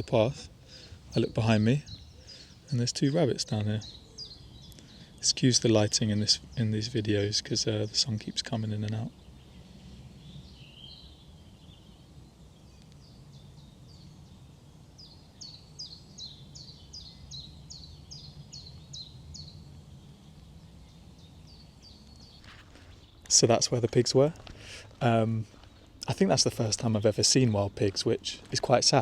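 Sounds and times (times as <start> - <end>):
songbird chirping: 0.0 - 29.0.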